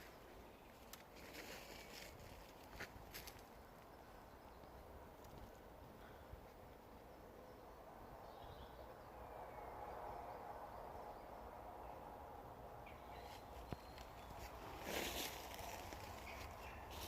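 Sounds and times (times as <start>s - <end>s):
distant bird chirps: 3.4s - 17.0s.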